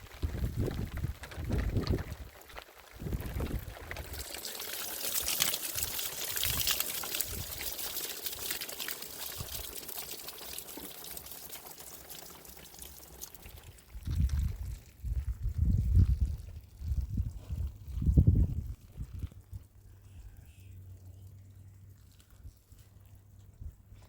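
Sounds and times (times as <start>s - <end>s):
water pouring: 0.0s - 20.0s, 20.8s - 24.0s.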